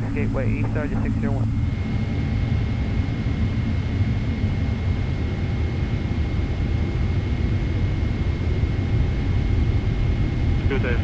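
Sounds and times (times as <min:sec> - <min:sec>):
airplane cabin rumble: 0:00.0 - 0:03.1, 0:09.0 - 0:11.0.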